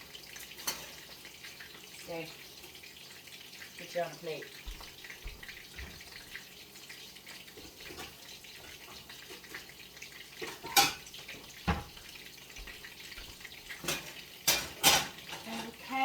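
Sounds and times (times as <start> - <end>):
dishware clacking: 10.4 - 11.1, 13.8 - 15.8.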